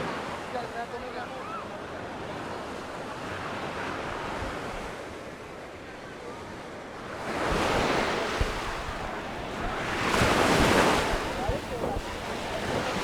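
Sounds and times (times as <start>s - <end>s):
sea waves breaking: 7.2s - 13.0s
wind rumble on microphone: 7.2s - 13.0s.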